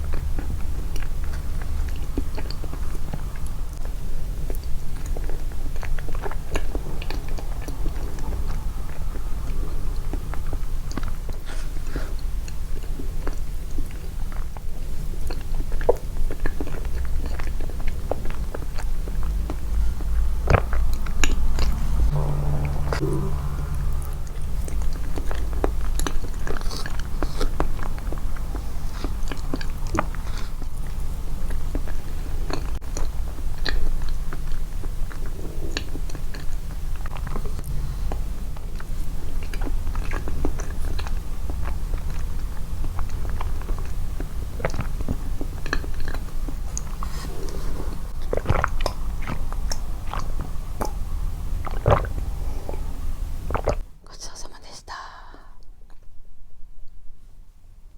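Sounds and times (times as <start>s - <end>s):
chewing and biting: 0.0s - 22.4s, 23.0s - 53.9s
low hum: 17.7s - 33.4s
wet mouth clicks: 45.6s - 51.0s, 51.6s - 52.8s, 53.4s - 55.2s.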